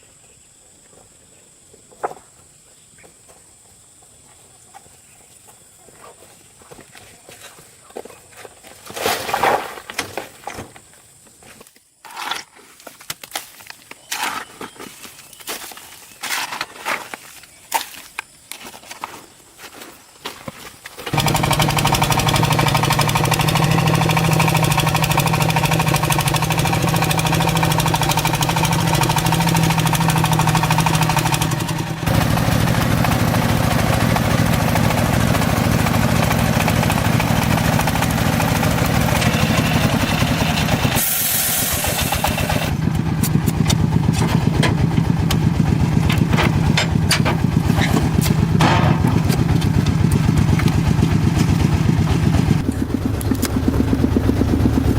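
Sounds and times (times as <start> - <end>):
engine humming: 21.1 - 54.9
sharp clattering knocks: 42.1 - 54.2.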